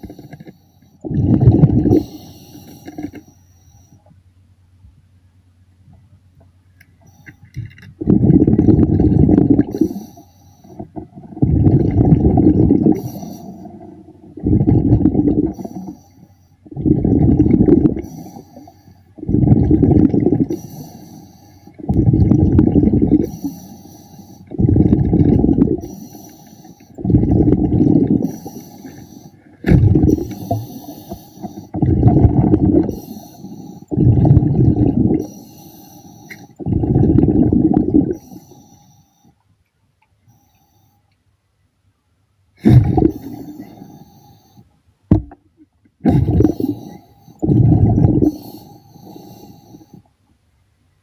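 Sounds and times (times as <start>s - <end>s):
exhaled bubbles rumbling: 1.0s - 3.1s, 7.6s - 16.0s, 16.6s - 21.0s, 21.7s - 23.7s, 24.4s - 26.3s, 26.9s - 35.7s, 36.4s - 38.4s, 42.6s - 44.0s, 46.0s - 50.0s
regulator inhale hiss: 1.9s - 4.1s, 9.7s - 10.9s, 12.9s - 13.8s, 15.5s - 16.7s, 18.0s - 19.2s, 20.5s - 21.9s, 23.2s - 24.6s, 25.8s - 27.1s, 28.2s - 31.8s, 32.8s - 34.0s, 35.2s - 36.6s, 38.1s - 39.4s, 40.2s - 41.1s, 43.0s - 44.8s, 46.2s - 50.1s.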